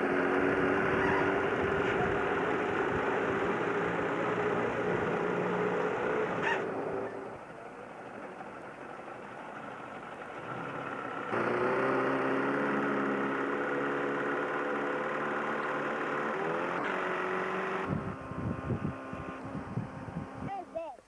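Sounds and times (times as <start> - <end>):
boat engine humming: 0.0 - 21.0.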